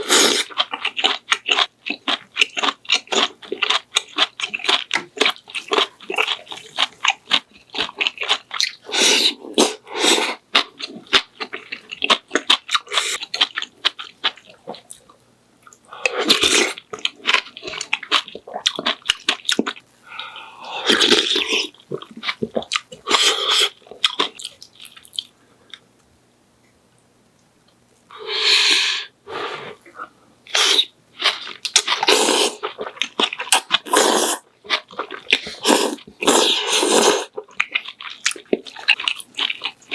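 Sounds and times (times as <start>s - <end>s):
slurping or blowing on food: 8.9s - 10.4s, 28.1s - 29.8s, 32.0s - 32.6s, 33.9s - 34.4s, 35.5s - 37.3s.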